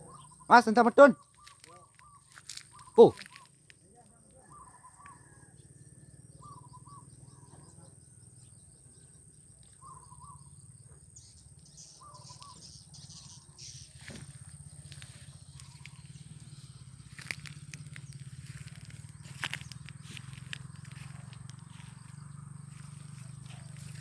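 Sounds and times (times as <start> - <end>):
bird lure call chirping: 0.0 - 3.7, 6.3 - 7.5, 9.6 - 24.0
faint high twittering: 0.0 - 24.0
low pulsing hum: 13.2 - 24.0.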